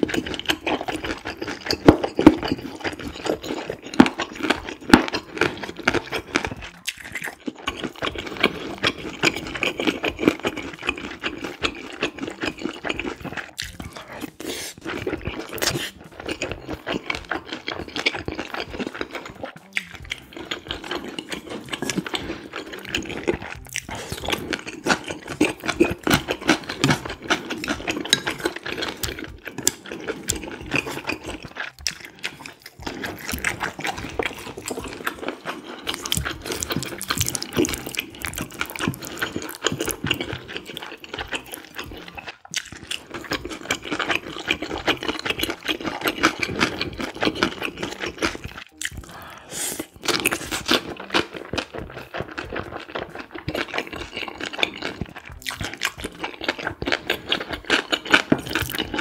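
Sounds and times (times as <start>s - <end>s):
close chewing with wet crunches: 0.0s - 59.0s.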